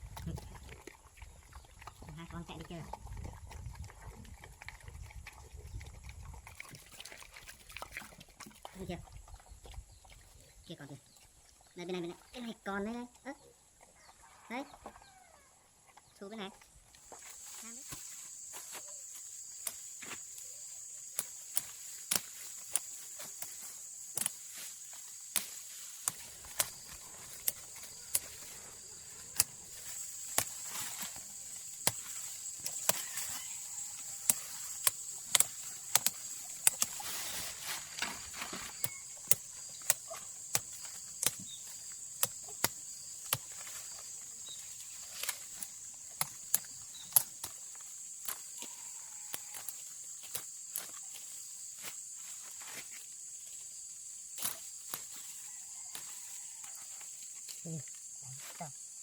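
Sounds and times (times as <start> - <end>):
high-pitched insect buzzing: 17.3 - 45.8, 46.5 - 52.3
sharp clicks and snaps: 25.3 - 37.0, 38.7 - 43.7, 45.0 - 47.6.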